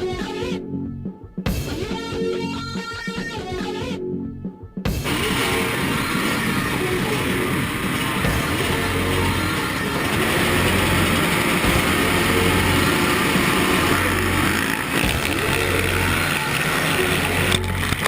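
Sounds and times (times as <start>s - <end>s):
motocross motorcycle engines: 4.9s - 18.0s.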